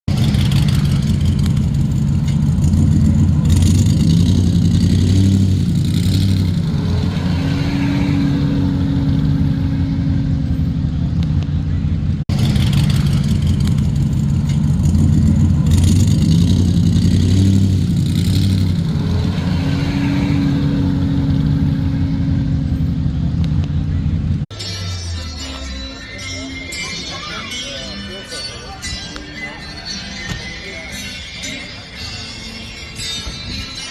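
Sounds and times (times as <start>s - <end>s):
car engine revving: 0.1s - 24.5s.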